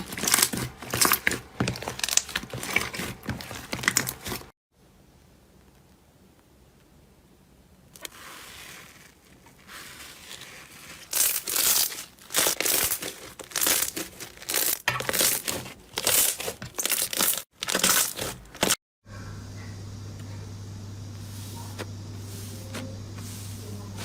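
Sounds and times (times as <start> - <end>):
slime crackling and crinkling: 0.0 - 4.5, 7.9 - 18.8
steady low hum: 19.1 - 24.0.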